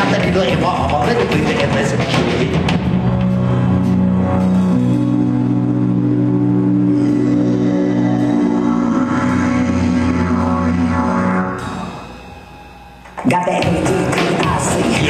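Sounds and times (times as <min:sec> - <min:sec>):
drum hits: 0:00.0 - 0:03.4
low sustained notes: 0:00.0 - 0:15.0.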